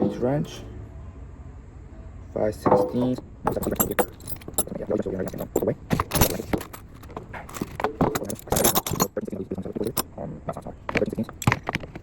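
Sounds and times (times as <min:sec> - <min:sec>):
wrenches clinking and scraping: 0:02.6 - 0:12.0.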